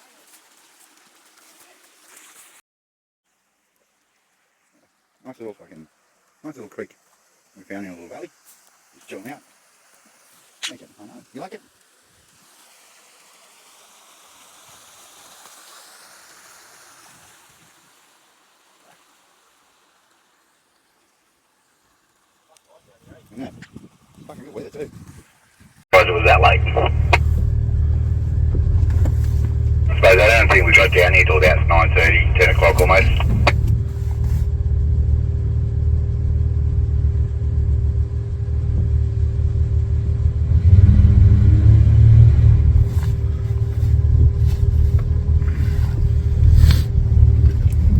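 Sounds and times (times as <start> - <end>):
small creek flowing: 0.0 - 2.6, 3.3 - 47.9
engine low rumble: 26.0 - 47.9.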